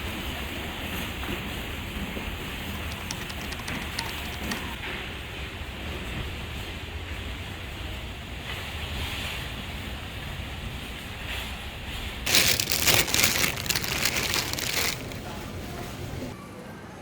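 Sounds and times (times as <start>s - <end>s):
crinkling rustle of handling: 2.9s - 4.8s, 12.2s - 16.3s.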